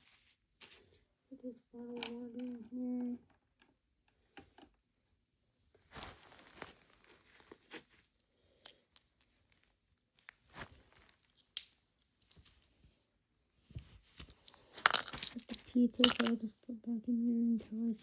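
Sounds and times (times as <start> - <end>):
brief rustling: 5.8 - 8.2
small plastic items clicking: 14.2 - 16.5.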